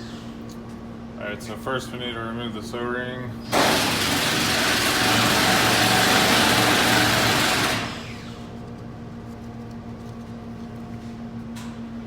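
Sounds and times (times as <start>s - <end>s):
power tool running and winding down: 3.5s - 8.3s.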